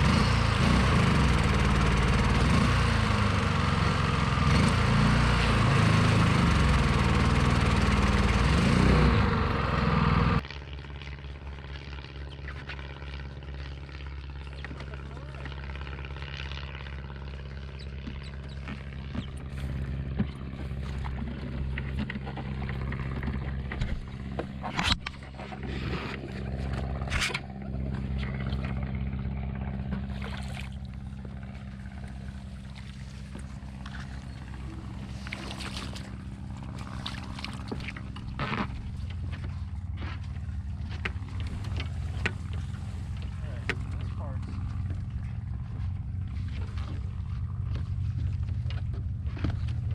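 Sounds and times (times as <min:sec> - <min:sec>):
boat motor running: 0:00.0 - 0:49.9
water and vegetation splashing: 0:30.0 - 0:39.9, 0:40.5 - 0:44.8.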